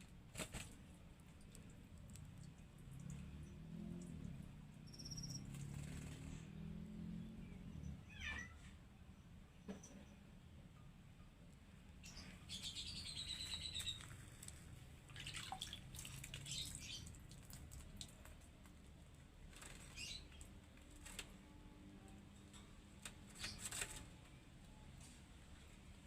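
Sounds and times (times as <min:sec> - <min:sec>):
bird wings fluttering in water: 0:00.3 - 0:01.6, 0:13.5 - 0:18.4
bird chirp: 0:04.7 - 0:08.4, 0:11.9 - 0:14.6, 0:16.4 - 0:17.2, 0:19.6 - 0:20.5.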